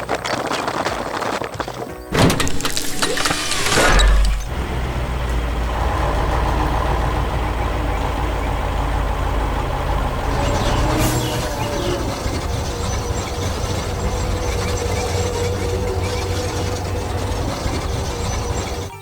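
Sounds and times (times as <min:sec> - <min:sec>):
loud clattering burst: 0:02.1 - 0:05.4, 0:09.9 - 0:18.9
diesel engine rumbling: 0:02.1 - 0:19.0.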